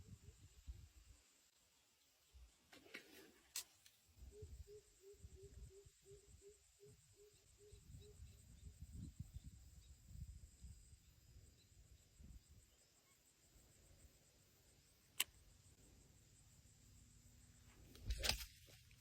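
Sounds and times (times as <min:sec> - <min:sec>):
sharp click: 0:15.1 - 0:15.4.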